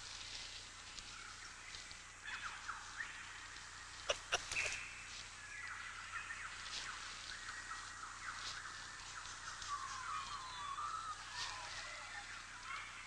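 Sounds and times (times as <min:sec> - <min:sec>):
birds chirping and twittering: 0:00.6 - 0:13.0.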